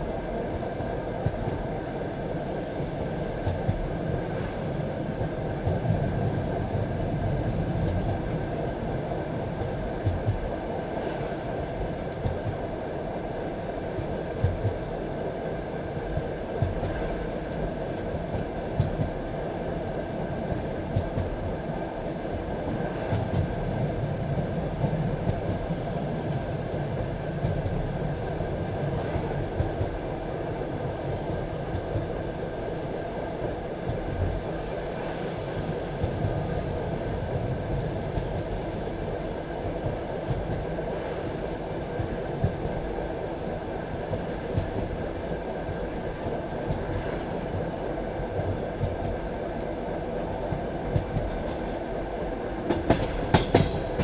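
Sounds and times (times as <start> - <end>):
train wheels rumbling on rails: 0.0 - 54.0
clacks over rail joints: 52.6 - 54.0.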